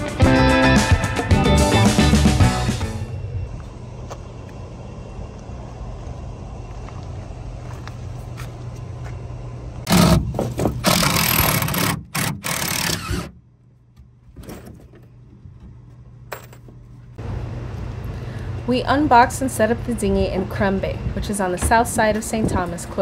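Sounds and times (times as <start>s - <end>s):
motor humming: 2.7s - 14.1s.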